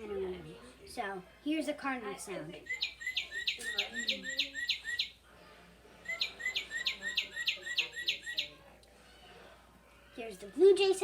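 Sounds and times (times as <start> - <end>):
recorded cardinal song whistles: 2.7 - 5.2, 6.1 - 8.6.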